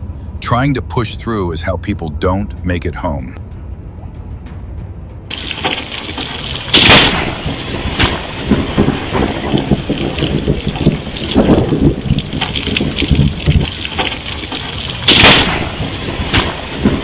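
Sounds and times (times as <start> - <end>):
rolling thunder rumbles: 5.2 - 17.0
heavy rain hissing: 5.3 - 17.0
sharp thunderclap: 5.3 - 17.0.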